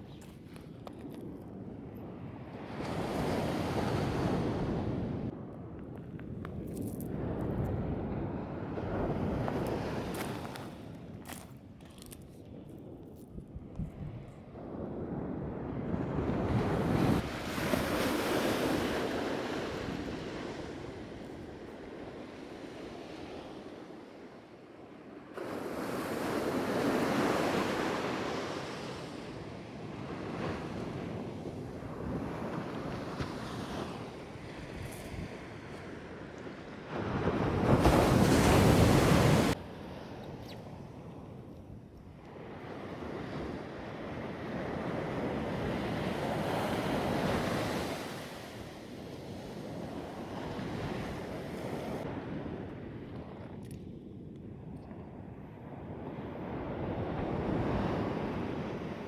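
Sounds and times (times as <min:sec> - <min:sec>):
wind buffeting microphone: 0:00.0 - 0:23.1.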